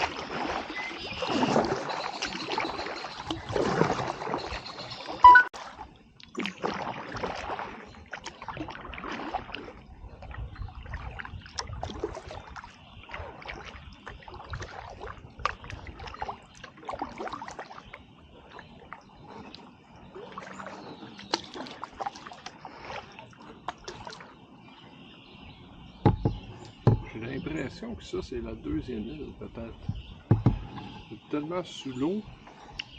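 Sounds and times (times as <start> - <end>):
kayak paddle splashing water: 0.0 - 27.9, 29.6 - 32.9
water dripping off paddle: 1.2 - 9.7, 10.9 - 24.3
low thump: 26.0 - 27.3, 30.2 - 30.8.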